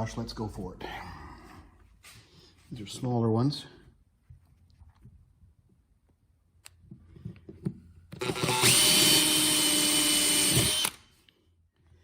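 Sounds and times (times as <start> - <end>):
power tool whining: 8.1 - 11.1.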